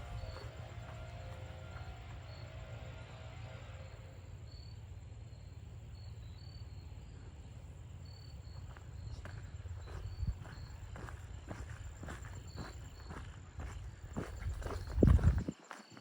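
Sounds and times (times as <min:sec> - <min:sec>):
soft footsteps on trail: 0:00.0 - 0:02.4, 0:08.3 - 0:16.0
low steady rumble: 0:00.0 - 0:15.4
crickets chirping: 0:00.0 - 0:16.0.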